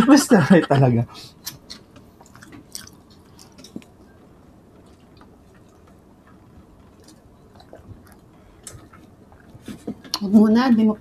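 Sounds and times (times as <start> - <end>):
soft mouth clicks: 1.4 - 3.9
faint chewing and mouth sounds: 1.4 - 10.4.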